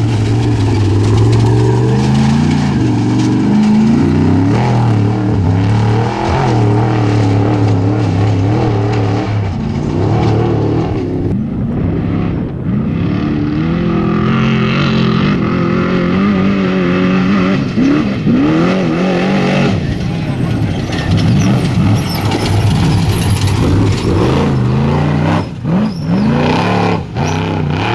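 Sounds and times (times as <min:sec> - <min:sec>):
race vehicle engine revving: 0:00.0 - 0:27.9.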